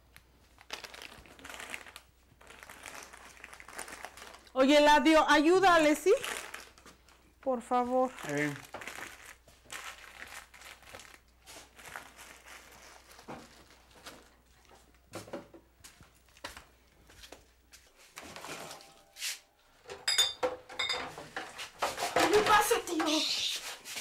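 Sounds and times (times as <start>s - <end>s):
packaging rustling and crinkling: 0.1s - 4.6s, 6.0s - 15.1s.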